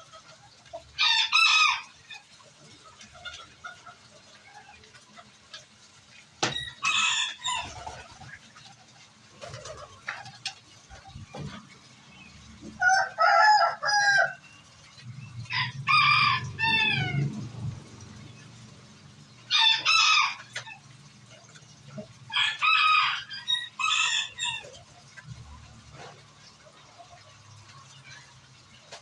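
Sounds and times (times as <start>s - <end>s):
rooster crowing: 12.8s - 14.4s, 15.5s - 17.4s, 19.5s - 20.5s, 22.3s - 24.7s.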